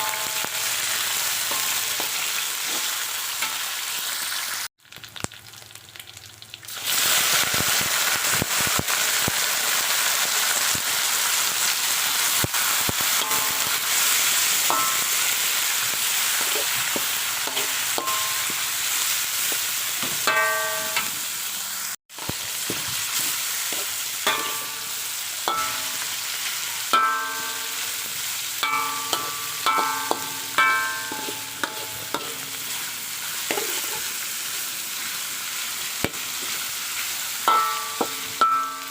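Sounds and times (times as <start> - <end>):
oil sizzling in a pan: 0.0 - 38.9
utensil clinking against pan: 14.6 - 15.3, 16.4 - 18.6, 24.3 - 24.9, 25.5 - 26.0, 28.6 - 32.5, 37.5 - 38.9.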